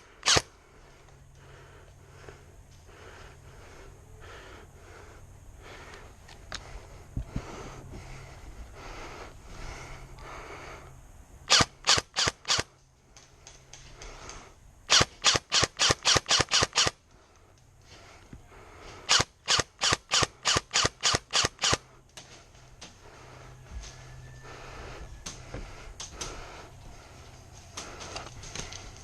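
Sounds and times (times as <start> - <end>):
airsoft gun rapid shots: 0.2 - 0.4, 11.5 - 12.7, 14.9 - 17.0, 19.1 - 21.8.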